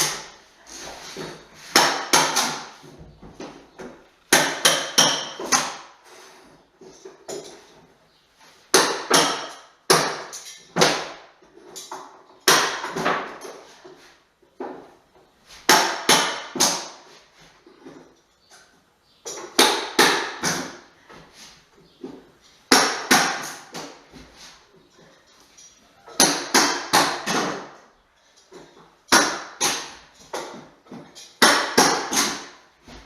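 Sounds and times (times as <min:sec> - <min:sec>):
hammer striking wood flooring: 0:01.2 - 0:02.9, 0:03.8 - 0:05.8, 0:08.7 - 0:11.2, 0:12.4 - 0:13.4, 0:15.6 - 0:17.0, 0:19.4 - 0:20.8, 0:22.7 - 0:24.0, 0:26.1 - 0:27.8, 0:29.1 - 0:33.0.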